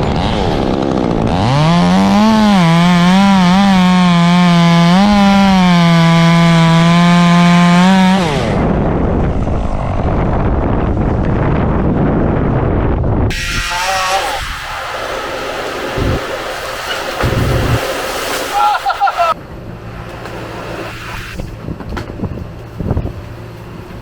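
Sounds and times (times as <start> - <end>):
chainsaw cutting at full speed: 0.0 - 8.9, 13.3 - 19.4
wind noise on microphone: 7.2 - 18.3, 20.4 - 24.0.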